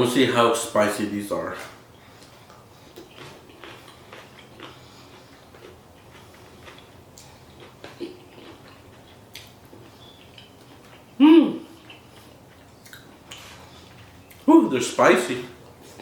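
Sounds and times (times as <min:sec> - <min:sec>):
chewing and mouth noises: 0:02.1 - 0:14.5.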